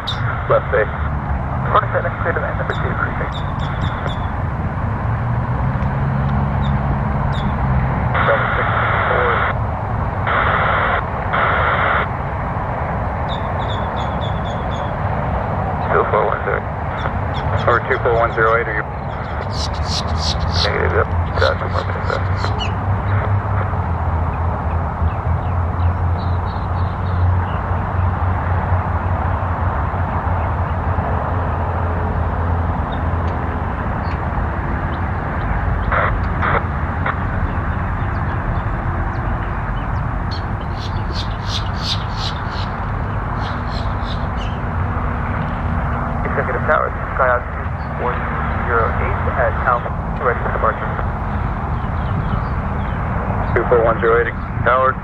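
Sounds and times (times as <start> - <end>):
hissing radio transmissions: 0.0 - 4.4, 6.3 - 24.0, 34.7 - 37.6, 40.3 - 51.5, 53.3 - 55.0
steady low rumble: 0.0 - 55.0
faint bird chirps: 40.3 - 42.8.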